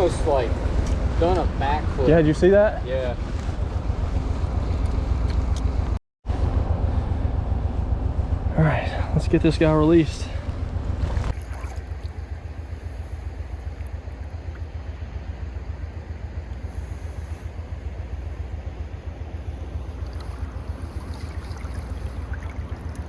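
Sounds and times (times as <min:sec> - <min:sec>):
wind rumbling on microphone: 0:00.0 - 0:23.0
creek water flowing: 0:10.3 - 0:23.0.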